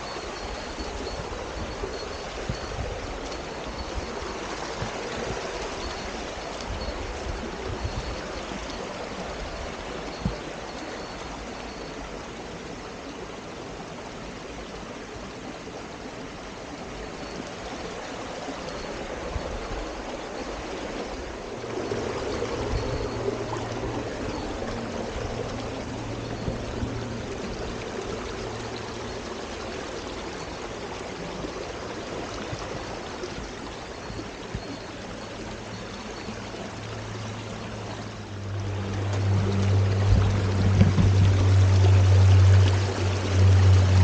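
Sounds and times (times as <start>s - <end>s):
mountain stream running: 0.0s - 44.0s.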